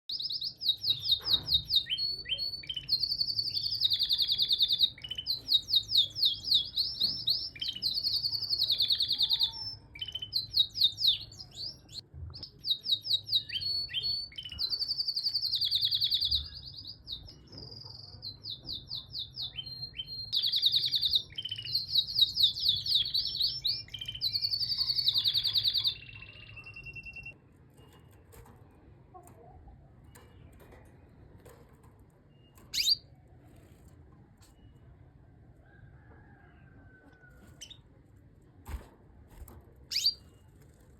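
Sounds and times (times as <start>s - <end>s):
canary singing: 0.1s - 28.3s, 32.3s - 33.9s, 39.9s - 40.7s.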